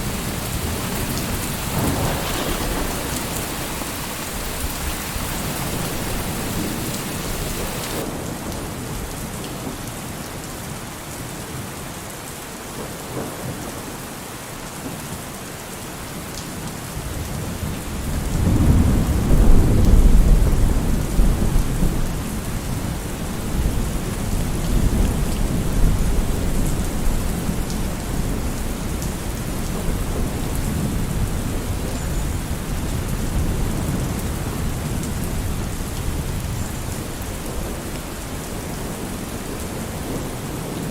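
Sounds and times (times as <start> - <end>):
rolling thunder rumble: 0.0 - 8.4, 18.0 - 31.9
steady rain falling: 0.0 - 40.9.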